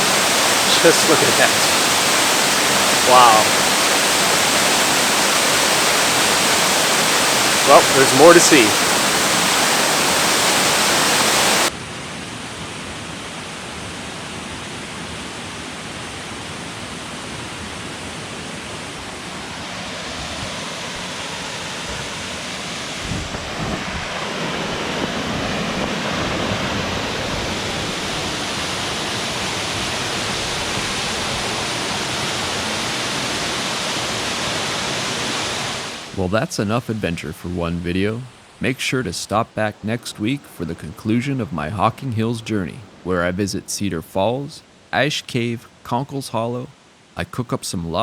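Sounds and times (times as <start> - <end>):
waterfall rushing: 0.0 - 11.8, 16.3 - 43.4.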